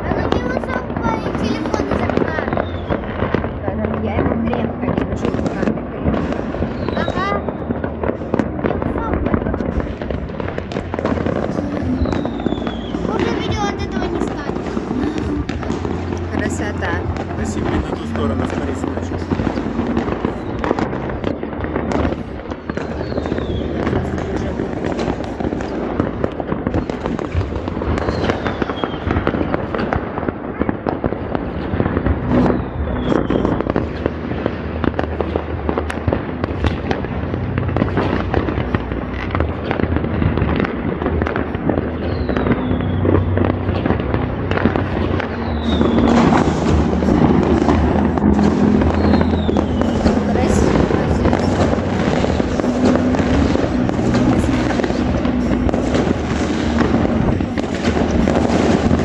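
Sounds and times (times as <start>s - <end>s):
fireworks bangs and crackling: 0.0s - 59.0s
falling firework whistles: 27.8s - 29.5s.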